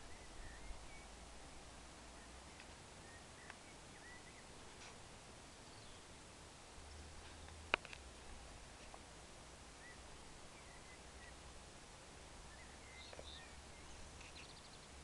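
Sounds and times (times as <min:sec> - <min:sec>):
faint bird chirps: 0:00.0 - 0:06.2, 0:09.7 - 0:11.5, 0:12.4 - 0:15.0
steady hiss: 0:00.0 - 0:15.0.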